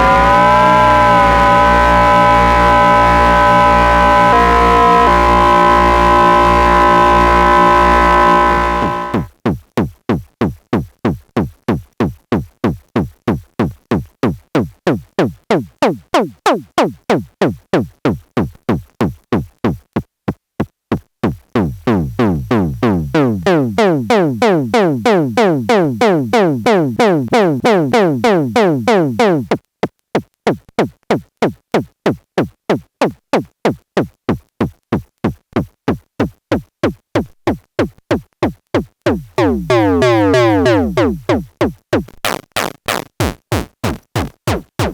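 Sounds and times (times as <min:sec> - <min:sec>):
synthesizer percussive blips: 0:00.0 - 0:09.3, 0:21.6 - 0:29.6, 0:38.8 - 0:44.9.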